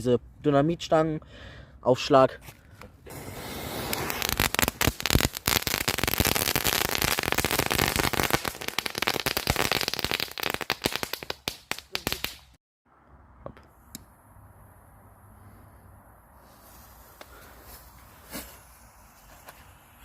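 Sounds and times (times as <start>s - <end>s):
firecrackers popping: 3.1s - 12.6s.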